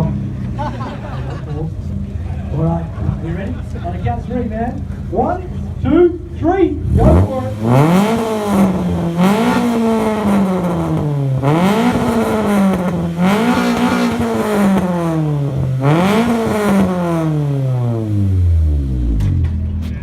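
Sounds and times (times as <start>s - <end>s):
car engine revving hard: 6.8s - 19.3s.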